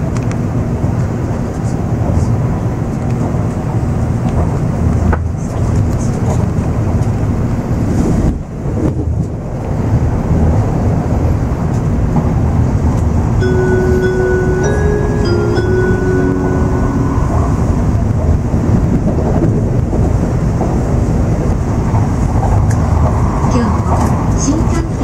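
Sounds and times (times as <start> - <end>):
train cabin rumble: 0.0 - 25.0
chime melody over speakers: 13.4 - 18.4.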